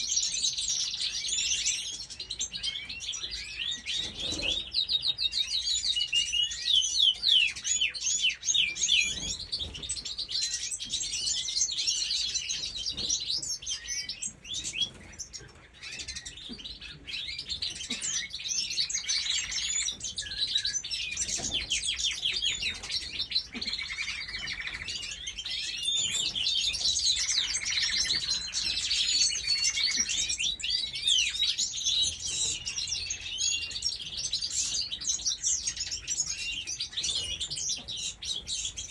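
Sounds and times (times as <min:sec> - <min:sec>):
flock of birds chirping: 0:00.0 - 0:38.9.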